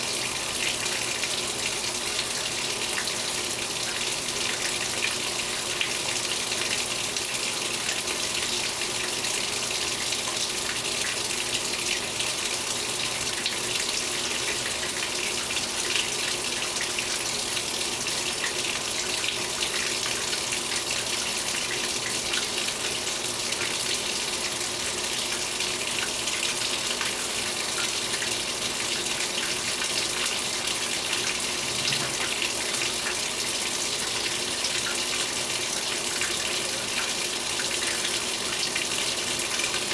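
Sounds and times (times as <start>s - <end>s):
water filling washing machine: 0.0s - 39.9s.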